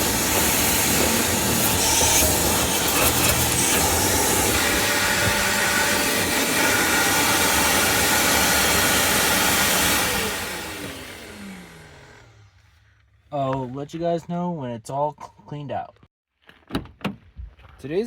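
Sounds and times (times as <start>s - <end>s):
vacuum cleaner running: 0.0s - 12.5s
vacuum motor winding down: 0.0s - 12.6s.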